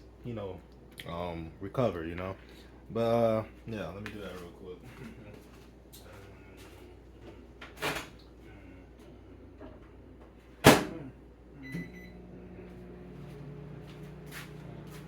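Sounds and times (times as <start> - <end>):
microwave oven humming: 0.0 - 15.0
microwave door slamming: 10.6 - 11.0.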